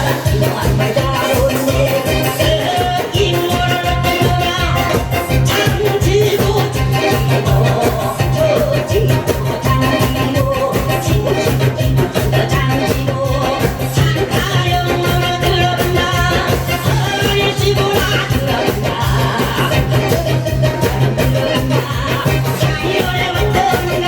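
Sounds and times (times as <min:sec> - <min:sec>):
drums beaten in driving rhythm: 0:00.0 - 0:24.0
people singing: 0:00.0 - 0:24.0.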